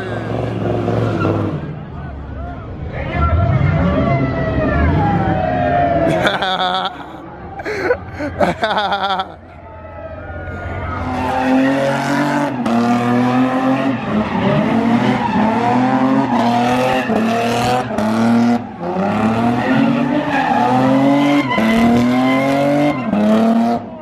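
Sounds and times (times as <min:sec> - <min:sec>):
tires squealing: 0:00.0 - 0:07.0, 0:08.2 - 0:24.0
car engine revving hard: 0:10.8 - 0:24.0.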